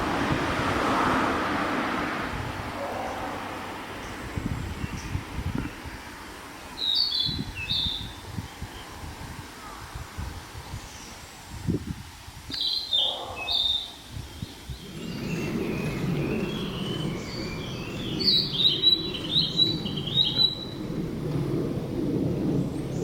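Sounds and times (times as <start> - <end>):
low rumble: 14.7 - 23.0
bird singing high notes: 14.8 - 20.8.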